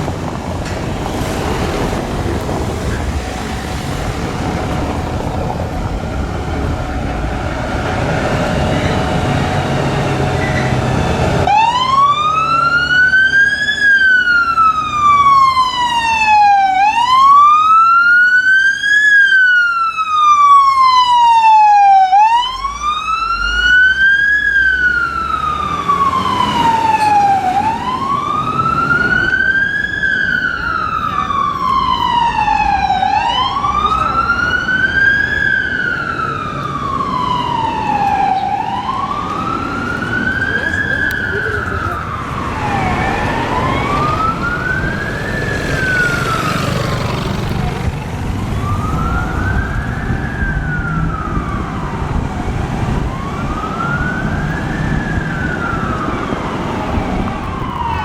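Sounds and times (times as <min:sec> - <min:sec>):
low engine rumble: 0:00.0 - 0:11.6
fire engine siren wailing: 0:00.0 - 0:58.0.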